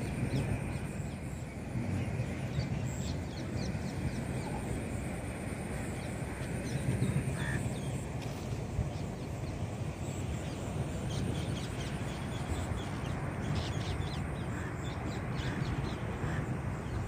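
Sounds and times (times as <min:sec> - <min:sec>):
birds chirping: 0:08.8 - 0:17.0.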